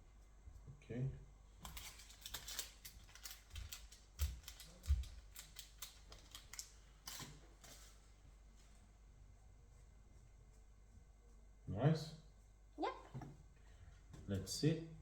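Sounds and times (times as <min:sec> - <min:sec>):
pen and craft pieces clicking: 0:01.6 - 0:07.3.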